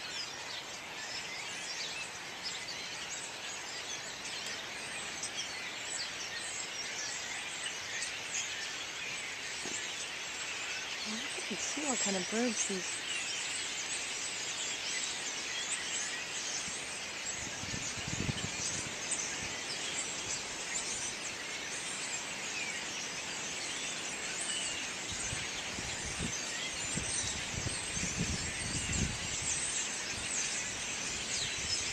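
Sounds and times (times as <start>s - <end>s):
flock of blackbirds chattering: 0.0s - 31.9s.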